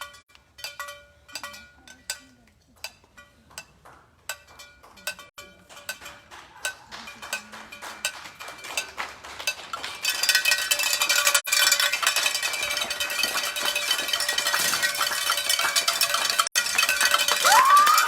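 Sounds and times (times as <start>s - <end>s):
spectators applauding: 6.2s - 10.3s, 17.4s - 18.0s
metallic noisemakers jangling: 9.8s - 18.0s
rising whoop: 17.4s - 18.0s.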